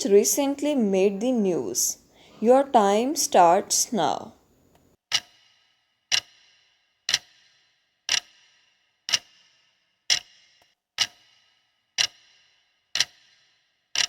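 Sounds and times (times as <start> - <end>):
clock ticks with ring: 5.1 - 5.4, 6.1 - 14.0.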